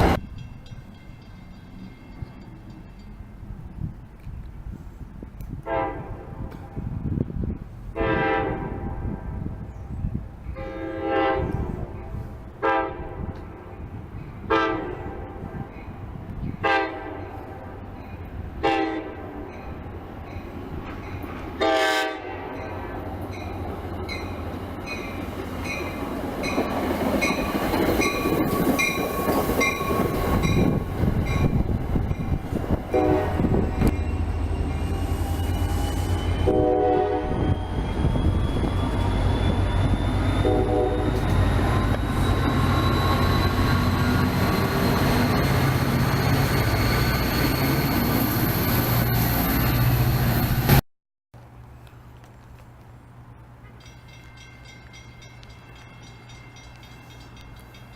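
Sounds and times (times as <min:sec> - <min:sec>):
train wheels rumbling on rails: 0:00.0 - 0:50.8
train horn blasts: 0:05.6 - 0:07.0, 0:07.9 - 0:09.4, 0:10.5 - 0:13.6, 0:14.4 - 0:15.7, 0:16.6 - 0:17.8, 0:18.6 - 0:19.4, 0:21.6 - 0:22.7, 0:32.9 - 0:34.0, 0:36.2 - 0:37.5, 0:40.4 - 0:41.5.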